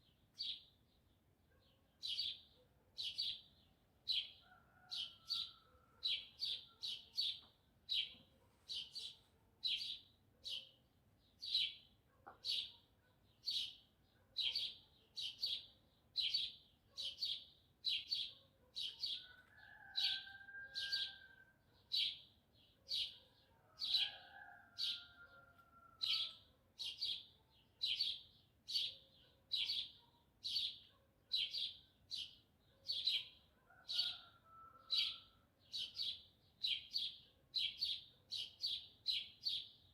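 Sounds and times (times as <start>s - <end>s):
faint rooster crowing: 4.4s - 6.8s, 19.0s - 21.8s, 23.4s - 26.5s, 33.6s - 35.8s
small bird chirping: 11.4s - 12.8s.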